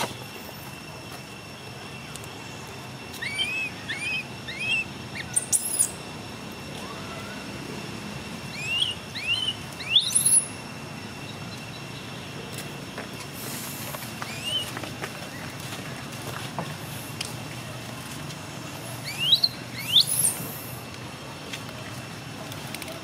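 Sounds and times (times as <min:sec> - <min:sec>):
birds chirping: 0:01.4 - 0:06.4, 0:08.4 - 0:12.6, 0:13.4 - 0:16.1, 0:18.6 - 0:21.1.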